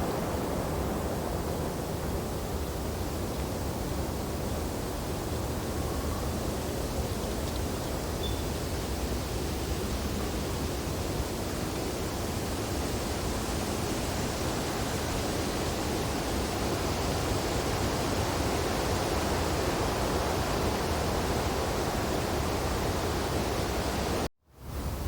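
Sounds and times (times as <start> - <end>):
wind through tree branches: 0.0 - 25.0.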